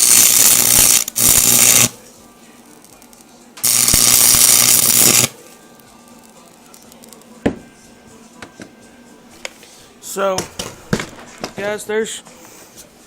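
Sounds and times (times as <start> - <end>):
welding arc crackling and hissing: 0.0 - 2.0, 3.6 - 5.4.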